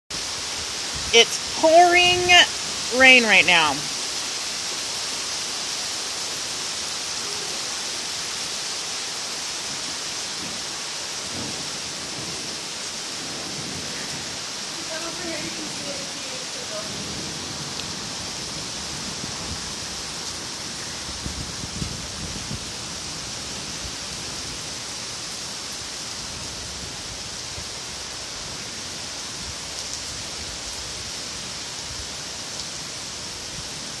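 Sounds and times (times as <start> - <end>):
heavy rain hissing: 0.1 - 34.0.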